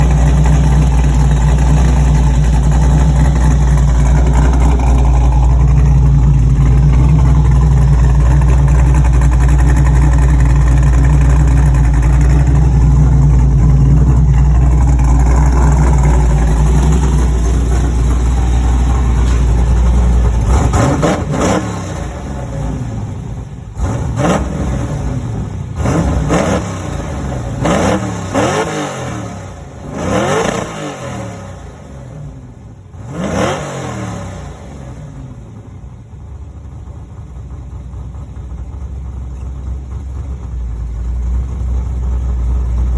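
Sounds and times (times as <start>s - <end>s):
car engine idling: 0.0s - 42.9s
engine revving in blips: 12.0s - 23.1s, 23.7s - 32.0s, 33.0s - 35.0s.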